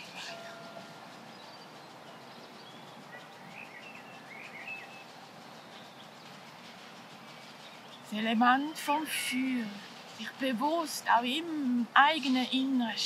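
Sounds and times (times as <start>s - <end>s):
faint bird chirps: 0.0s - 6.5s
low background noise: 0.0s - 13.0s.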